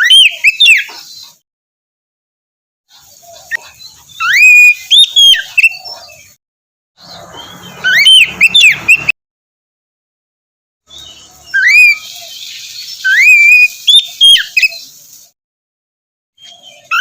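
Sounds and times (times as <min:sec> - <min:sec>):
bird singing whistled notes: 0:00.0 - 0:01.4, 0:03.5 - 0:06.4, 0:07.0 - 0:09.2, 0:10.9 - 0:15.1, 0:16.4 - 0:17.0.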